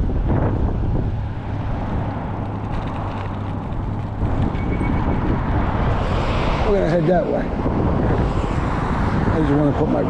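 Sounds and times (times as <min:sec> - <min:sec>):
tyre and wind rumble: 0:00.0 - 0:10.0.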